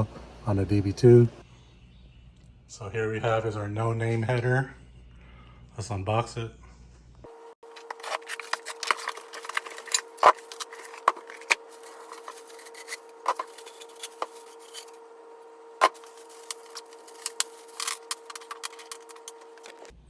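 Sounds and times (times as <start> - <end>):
faint steady hum: 0.0 - 20.0
packaging rubbing and clicking: 7.7 - 14.9, 15.8 - 19.9.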